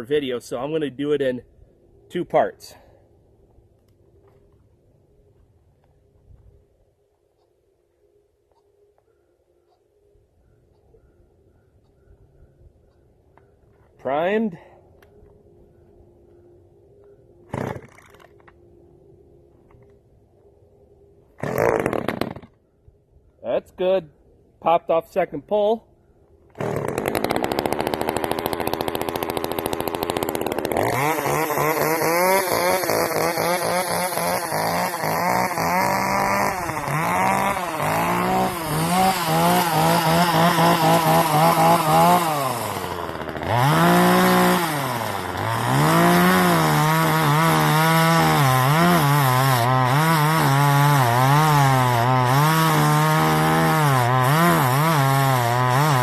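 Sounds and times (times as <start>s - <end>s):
chainsaw idling: 26.6s - 56.0s.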